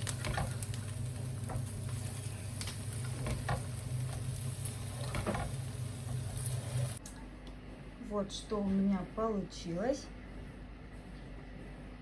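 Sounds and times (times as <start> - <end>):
pancakes sizzling in frying pan: 0.0 - 7.0
steady low hum: 0.0 - 12.0.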